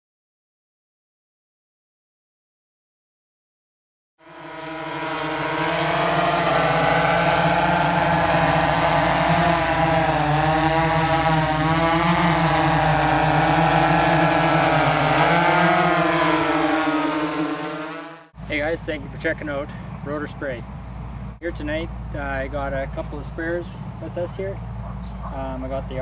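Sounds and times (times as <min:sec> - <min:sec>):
drone rotors hovering: 0:04.2 - 0:20.2.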